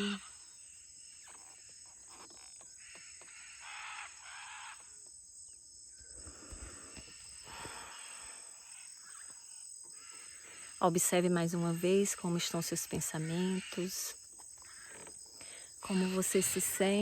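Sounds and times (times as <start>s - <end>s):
macaw calling harshly: 0.0s - 0.4s, 2.7s - 4.9s.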